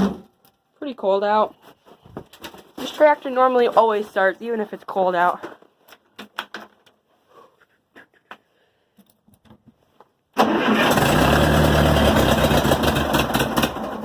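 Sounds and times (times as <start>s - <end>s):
engine starter cranking: 10.4s - 14.0s.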